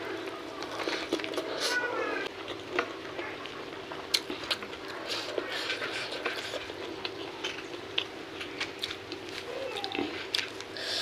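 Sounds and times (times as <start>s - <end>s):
chewing and mouth sounds: 2.4s - 11.0s.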